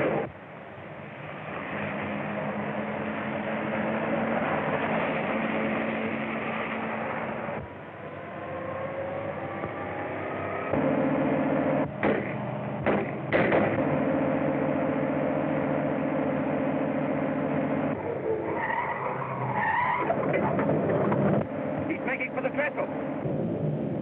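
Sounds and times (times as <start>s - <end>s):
motor vehicle running: 0.0s - 24.0s
tyres skidding: 0.0s - 24.0s
sharp bangs: 10.7s - 14.3s.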